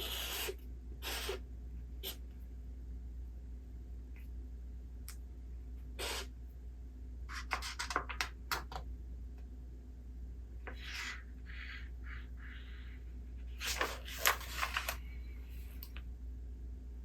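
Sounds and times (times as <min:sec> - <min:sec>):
paper rustling: 0:13.6 - 0:15.1.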